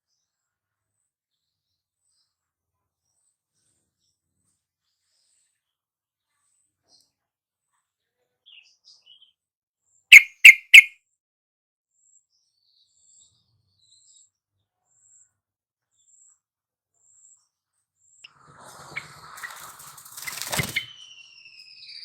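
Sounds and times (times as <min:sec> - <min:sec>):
bird chirping: 0:08.5 - 0:09.4, 0:10.1 - 0:10.9, 0:17.0 - 0:22.0
loud quick bird notes: 0:10.1 - 0:10.9, 0:18.8 - 0:22.0.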